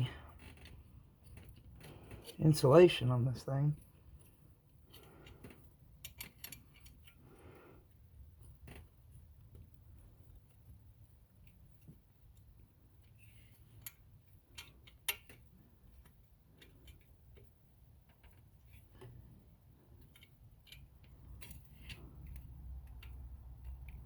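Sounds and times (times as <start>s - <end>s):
low steady hum: 0.0s - 24.0s
hand tools clicking and tapping: 4.9s - 7.1s, 13.7s - 17.5s.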